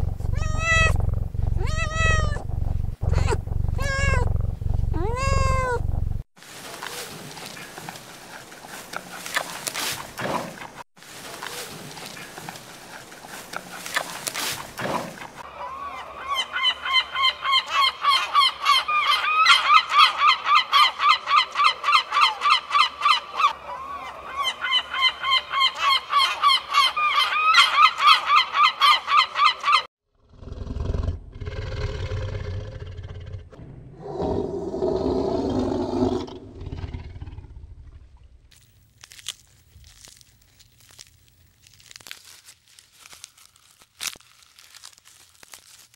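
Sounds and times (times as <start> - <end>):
deep growl-like call: 0.0 - 6.2, 30.2 - 38.1
low rumbling: 0.0 - 6.3, 32.2 - 38.5.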